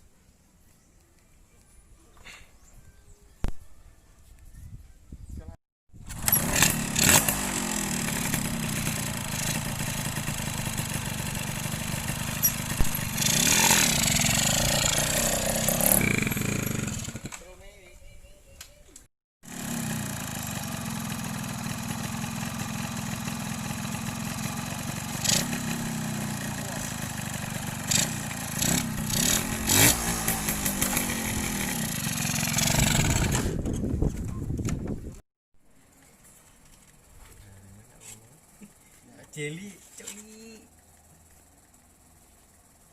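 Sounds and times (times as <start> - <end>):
two-stroke engine revving: 6.1 - 17.4, 19.4 - 33.7.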